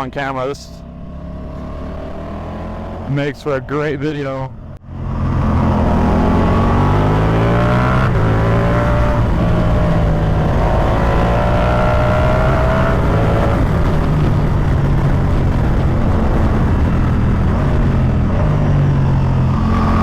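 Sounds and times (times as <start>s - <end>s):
motorcycle engine pulling hard: 4.9s - 20.0s.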